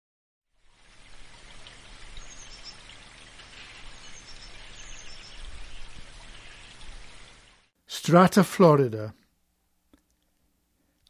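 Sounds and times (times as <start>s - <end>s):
background hiss: 0.6s - 11.0s
small birds chirping: 2.0s - 7.4s.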